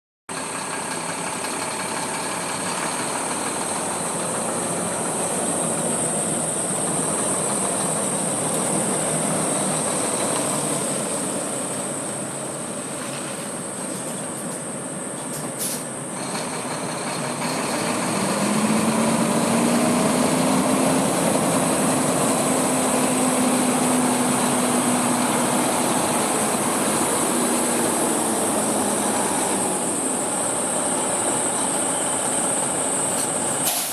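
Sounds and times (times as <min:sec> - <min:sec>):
heavy truck diesel engine running: 0:00.3 - 0:33.9.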